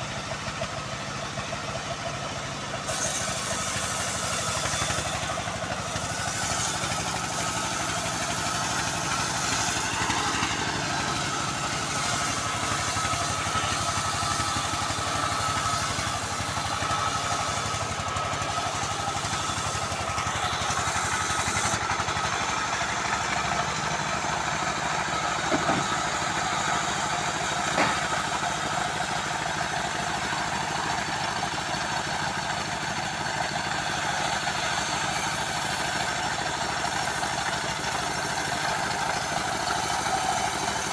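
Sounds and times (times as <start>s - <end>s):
band sawmill sawing log: 0.0s - 40.9s.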